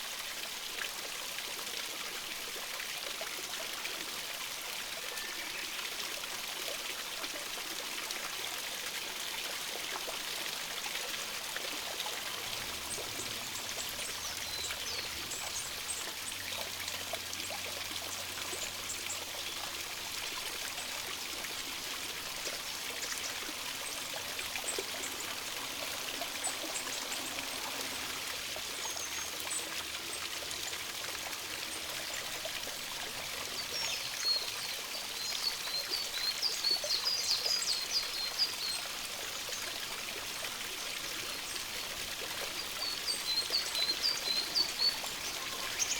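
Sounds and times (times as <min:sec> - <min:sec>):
stream running over rocks: 0:00.0 - 0:45.9.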